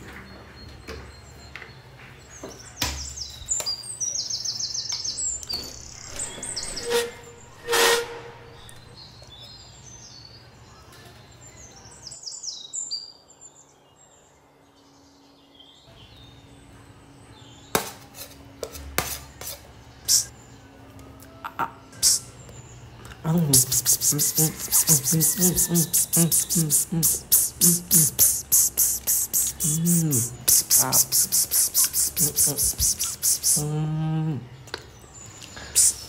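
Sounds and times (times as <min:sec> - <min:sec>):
low city hum: 0:00.0 - 0:13.0
birds chirping in trills: 0:00.0 - 0:17.7, 0:19.8 - 0:36.0.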